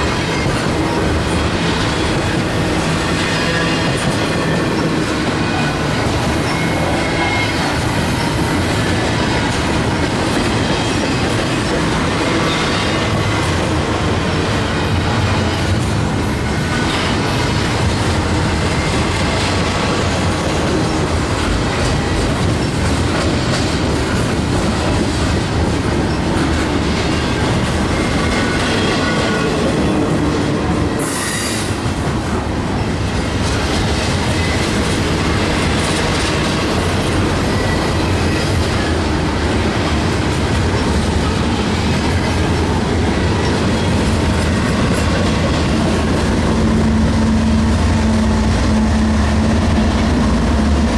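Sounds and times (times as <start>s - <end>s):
steel wheels rumbling on rail: 0.0s - 50.9s
wheel squeals: 30.8s - 31.8s, 34.0s - 39.0s.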